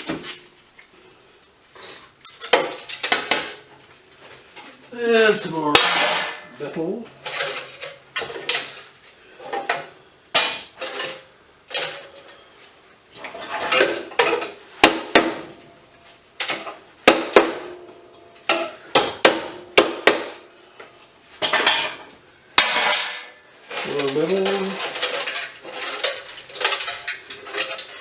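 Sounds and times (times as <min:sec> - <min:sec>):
scrap metal clanking: 0:05.6 - 0:14.6, 0:21.3 - 0:28.0.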